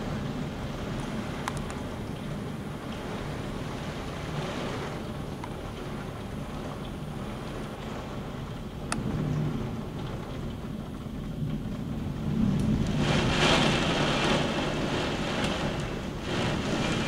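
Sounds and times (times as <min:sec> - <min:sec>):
low rumble of wind: 0:00.0 - 0:17.0
heavy rain hissing: 0:11.9 - 0:17.0.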